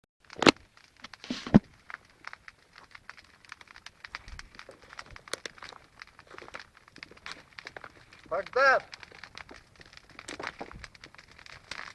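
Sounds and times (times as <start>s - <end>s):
bonfire crackling and snapping: 0.2s - 11.9s.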